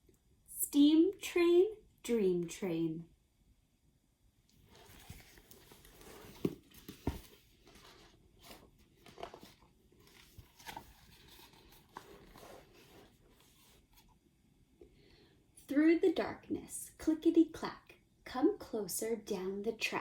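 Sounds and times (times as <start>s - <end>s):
faint rustling: 4.5s - 14.2s.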